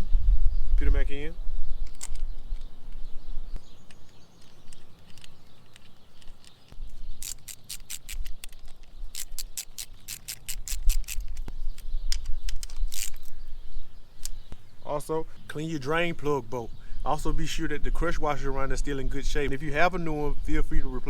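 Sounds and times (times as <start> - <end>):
ratchet clicking: 4.0 - 11.5.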